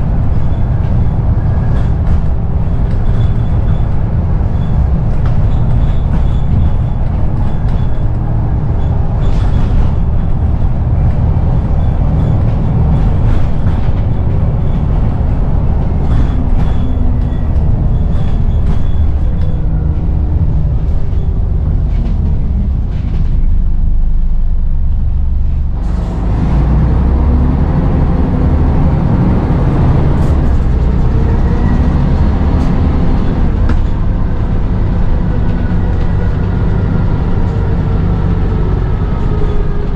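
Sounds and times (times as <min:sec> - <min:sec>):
knocks and rattles: 0:00.0 - 0:23.6
bus engine rumble: 0:00.0 - 0:39.9.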